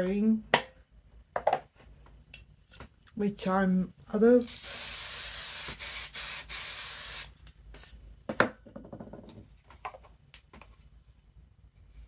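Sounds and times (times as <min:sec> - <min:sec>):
aerosol can spraying: 0:04.5 - 0:07.4.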